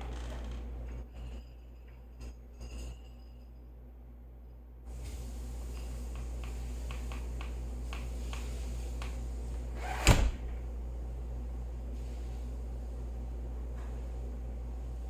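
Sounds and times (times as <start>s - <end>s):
background hiss: 4.9s - 10.4s
door shutting: 9.8s - 10.6s.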